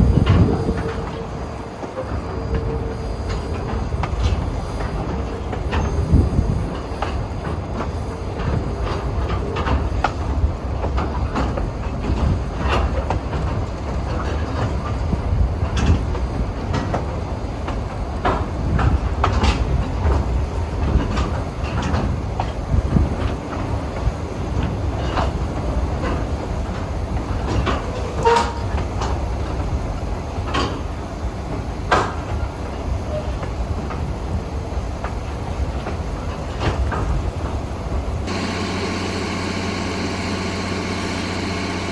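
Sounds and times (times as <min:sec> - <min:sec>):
train rumbling on rails: 0:00.0 - 0:41.9
wheels clicking on track: 0:00.0 - 0:41.9.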